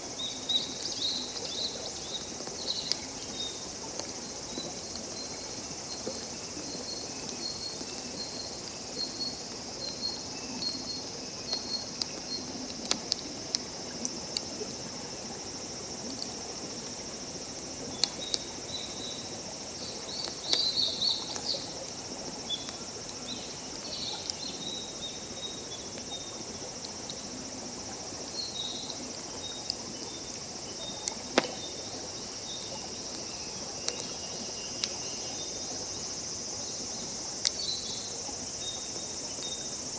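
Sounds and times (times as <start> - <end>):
crickets chirping: 0.0 - 39.9
high insect hiss: 0.0 - 39.9
campfire pops and crackles: 0.8 - 5.0, 11.4 - 14.6, 16.0 - 18.6, 31.0 - 32.0, 33.8 - 34.2.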